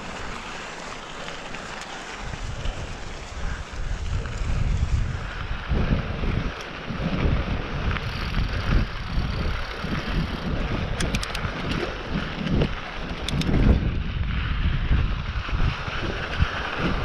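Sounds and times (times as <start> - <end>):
bike tyres rumbling on dirt: 0.0 - 17.0
wind buffeting microphone: 2.0 - 17.0
quick rattling clicks: 10.9 - 11.9, 13.2 - 13.6.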